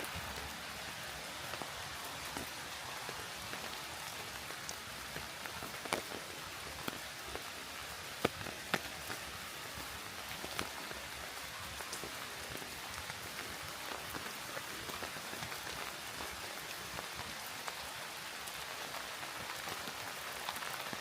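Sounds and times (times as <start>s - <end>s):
raindrops ticking close by: 0.0s - 21.0s
steady rain hissing: 0.0s - 21.0s.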